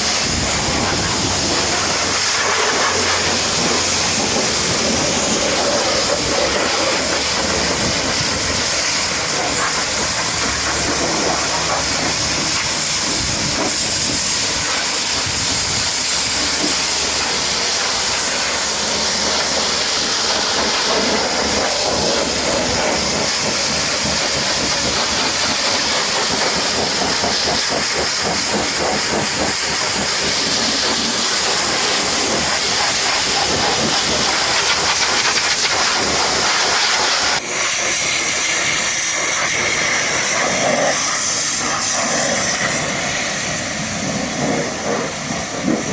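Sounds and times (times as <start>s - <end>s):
pressure washer spraying water: 0.0s - 45.9s.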